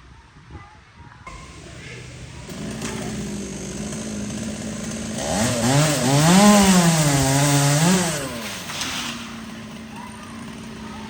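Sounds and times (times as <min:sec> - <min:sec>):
chainsaw cutting tree branch: 0:01.3 - 0:11.0.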